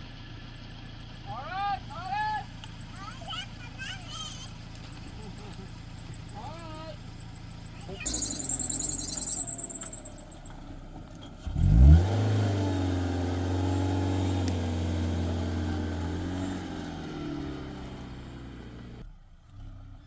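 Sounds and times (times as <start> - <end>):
vehicle engine starting and idling: 0.0 - 20.0
high warbling sound: 8.0 - 10.4.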